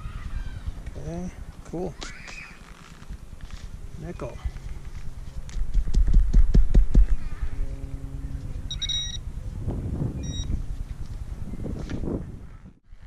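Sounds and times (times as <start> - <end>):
low steady electronic tone: 7.0 - 11.6
short high beeps: 8.7 - 9.2, 10.2 - 10.6.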